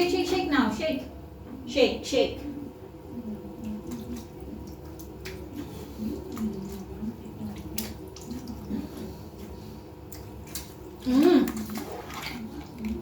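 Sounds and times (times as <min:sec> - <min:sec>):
water splashing in a basin: 0:03.6 - 0:13.0
sharp drips and clicks: 0:06.2 - 0:13.0.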